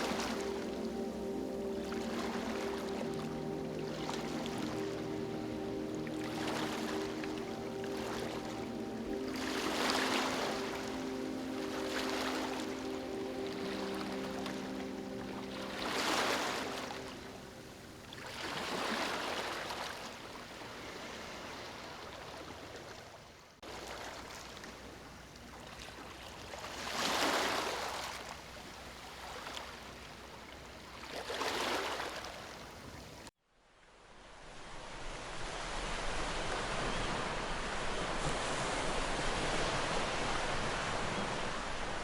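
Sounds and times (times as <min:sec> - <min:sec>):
steady surf: 0:00.0 - 0:22.6, 0:34.0 - 0:42.0
sea waves washing on shore: 0:00.0 - 0:33.3, 0:34.4 - 0:42.0.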